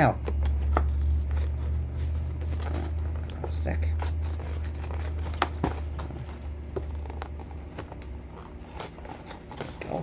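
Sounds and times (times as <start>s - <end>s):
packaging tearing and scraping: 7.1s - 10.0s.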